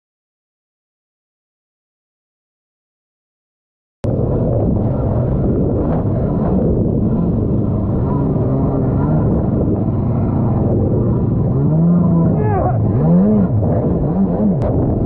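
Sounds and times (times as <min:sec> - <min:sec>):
jet boat engines: 0:04.0 - 0:15.0.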